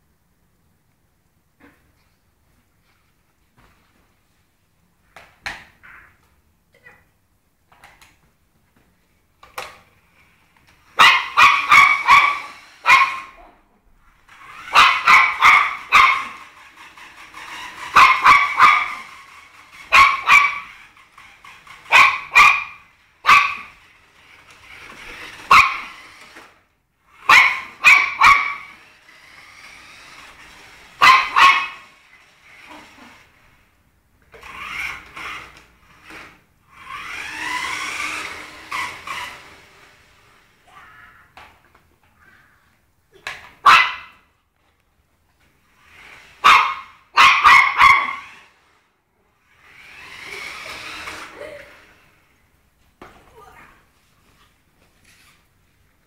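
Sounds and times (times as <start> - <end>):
rising whir: 10.2 - 13.4, 14.1 - 40.7, 48.0 - 52.5
small dog yapping: 11.0 - 13.5, 14.6 - 16.4, 17.9 - 19.1, 19.8 - 20.7, 21.8 - 23.8, 25.4 - 26.1, 27.2 - 28.8, 31.0 - 31.9, 43.6 - 44.2, 46.4 - 48.4.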